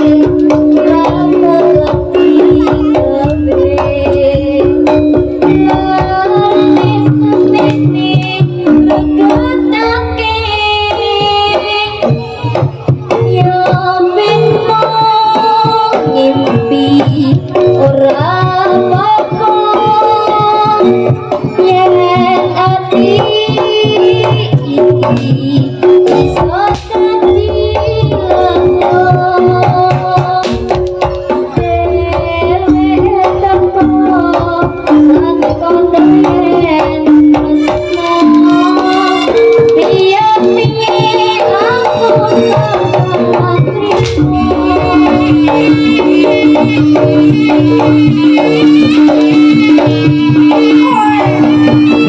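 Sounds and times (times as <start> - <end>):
hand drums beating: 0.0 - 52.0.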